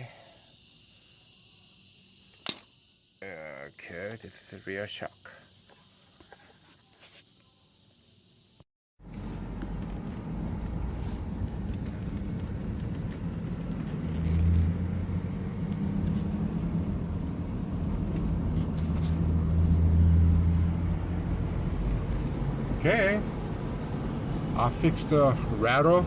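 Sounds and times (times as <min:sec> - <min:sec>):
road noise: 0:09.0 - 0:26.0
van engine hum: 0:09.0 - 0:26.0.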